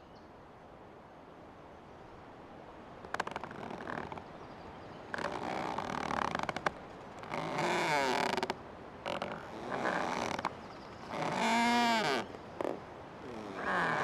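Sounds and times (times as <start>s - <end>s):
tree creaking: 3.0s - 14.0s.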